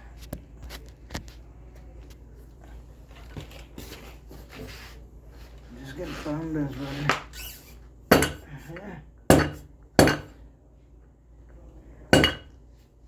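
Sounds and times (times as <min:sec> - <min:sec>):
hammer striking metal: 0:08.1 - 0:08.5, 0:09.3 - 0:10.4, 0:12.1 - 0:12.5.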